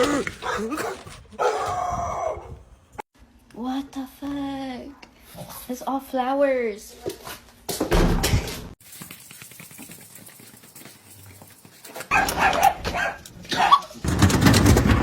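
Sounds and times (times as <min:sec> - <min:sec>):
dog barking and yipping: 0:12.0 - 0:14.1.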